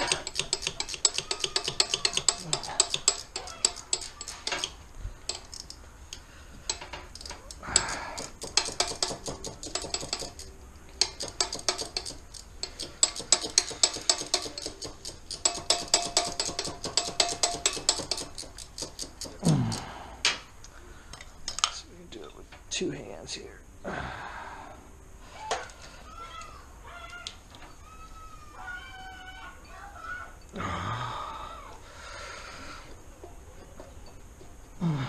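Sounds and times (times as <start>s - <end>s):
ratchet wrench clicking: 0.0s - 5.8s, 6.7s - 19.8s.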